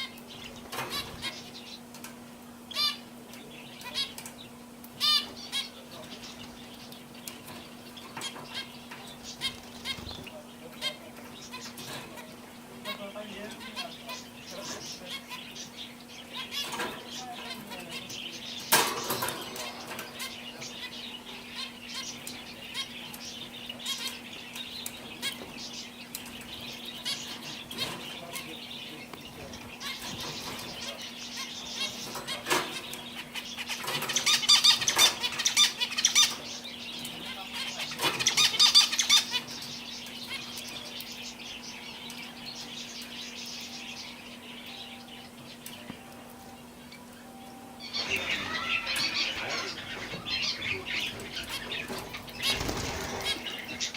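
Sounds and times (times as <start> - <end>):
canaries chirping: 0.0 - 53.9
canaries twittering song: 0.0 - 53.9
wings fluttering: 48.0 - 53.9.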